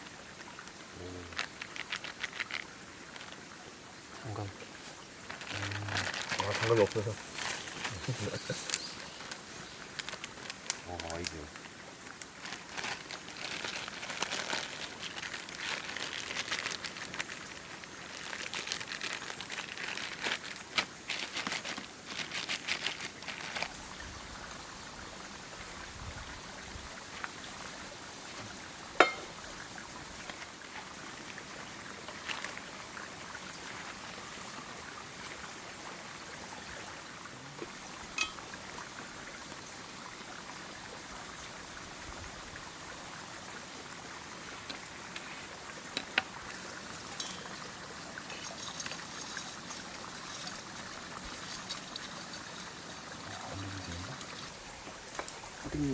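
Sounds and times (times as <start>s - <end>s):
food sizzling on a grill: 4.7s - 11.4s.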